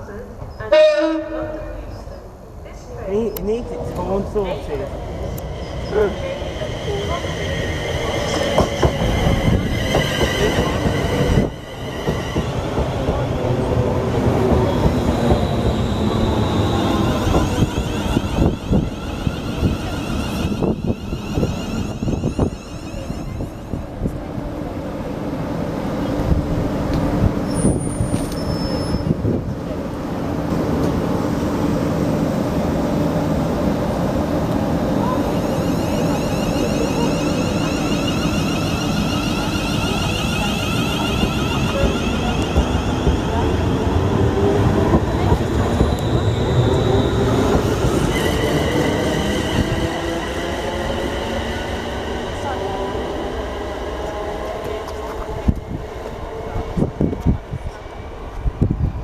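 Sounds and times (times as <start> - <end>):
train rumbling: 0.0 - 59.0
high metallic wheel squeal: 15.4 - 23.8, 27.5 - 29.2, 35.3 - 42.9.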